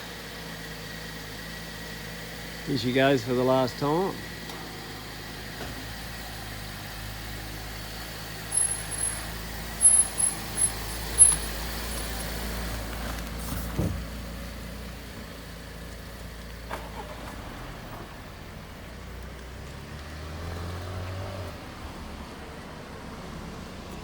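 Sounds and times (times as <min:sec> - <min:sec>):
vehicle engine droning: 0:00.0 - 0:24.0
high-pitched squeaks: 0:08.6 - 0:12.3.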